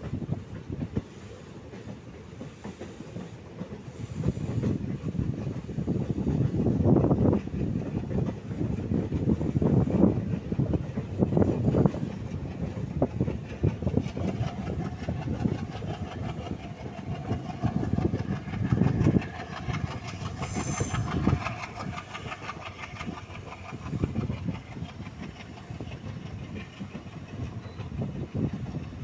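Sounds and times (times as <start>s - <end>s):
train wheels clattering on rails: 0.0s - 29.0s
wind buffeting microphone: 0.0s - 29.0s
high squeal: 20.4s - 21.3s.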